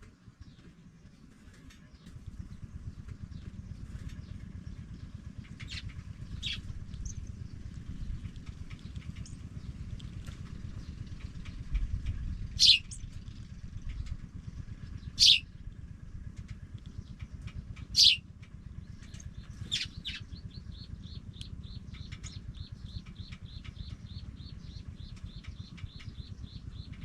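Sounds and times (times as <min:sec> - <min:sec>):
steady low rumble: 0:00.0 - 0:27.0
nestlings chirping: 0:05.5 - 0:10.2, 0:12.4 - 0:13.1, 0:15.1 - 0:15.4, 0:17.8 - 0:18.2, 0:19.0 - 0:27.0.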